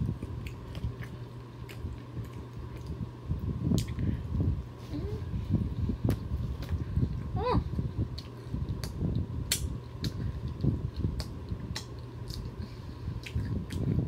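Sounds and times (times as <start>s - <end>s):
close-up chewing: 0.0s - 3.1s, 8.1s - 14.0s
wet mouth clicks and smacks: 3.7s - 4.0s, 8.1s - 12.6s, 13.2s - 14.0s.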